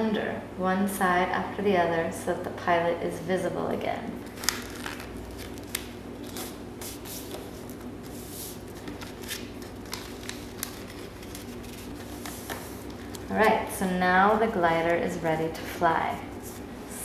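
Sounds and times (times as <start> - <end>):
paper being folded and creased: 4.2 - 13.5.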